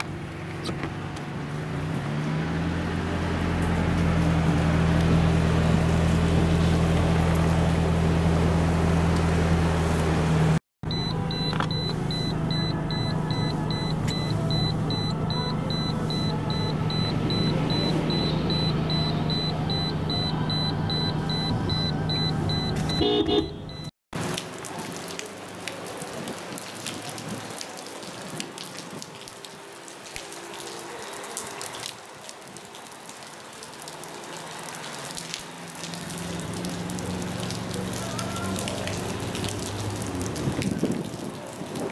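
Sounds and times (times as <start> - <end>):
running water on street: 0.0 - 23.3, 24.1 - 41.9
vehicle engine humming: 0.0 - 23.9, 35.4 - 40.7
rapid electronic beeping: 10.9 - 23.9
heavy rain: 24.2 - 41.9.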